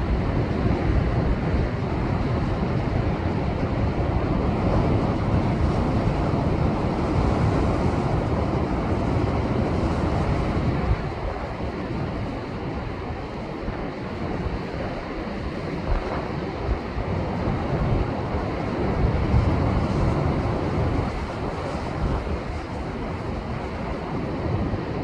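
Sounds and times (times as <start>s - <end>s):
wind buffeting microphone: 0.0s - 25.0s
ocean surf breaking on rocks: 5.5s - 24.9s.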